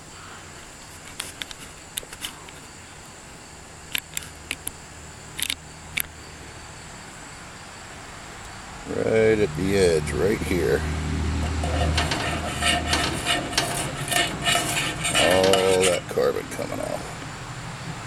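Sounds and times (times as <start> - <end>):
steady low hum: 8.8 - 18.0.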